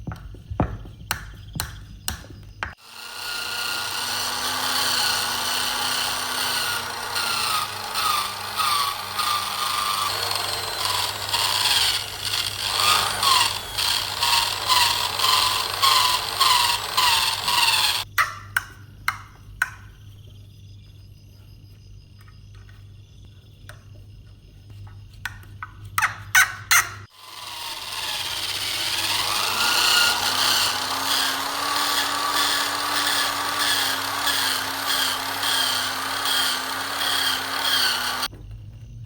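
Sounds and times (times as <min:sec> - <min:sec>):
power tool running: 0:02.7 - 0:18.0, 0:27.1 - 0:38.3.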